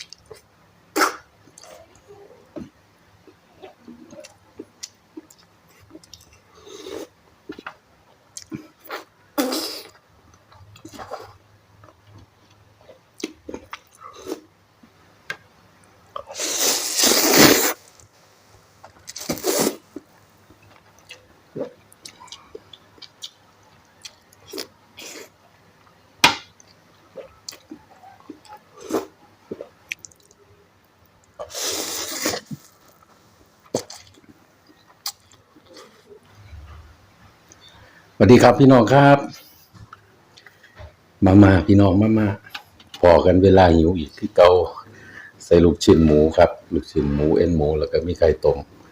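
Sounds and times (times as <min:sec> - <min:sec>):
soft chewing: 0:01.4 - 0:09.1, 0:18.8 - 0:26.0, 0:26.6 - 0:38.0, 0:39.4 - 0:41.0
loud noodle slurps: 0:16.3 - 0:17.8, 0:19.2 - 0:19.8, 0:31.4 - 0:32.6.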